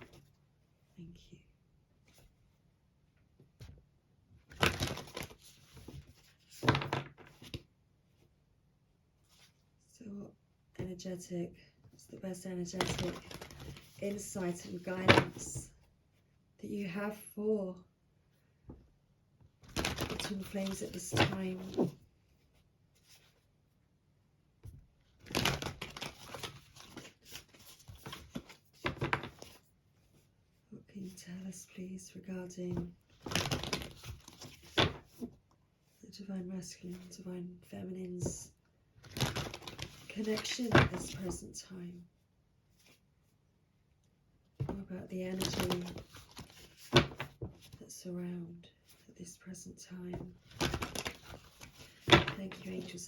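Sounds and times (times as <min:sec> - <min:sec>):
cards shuffling: 0:12.8 - 0:14.3, 0:19.6 - 0:22.0, 0:25.2 - 0:29.6, 0:33.2 - 0:35.3, 0:39.0 - 0:41.2, 0:44.7 - 0:47.7, 0:50.5 - 0:53.0.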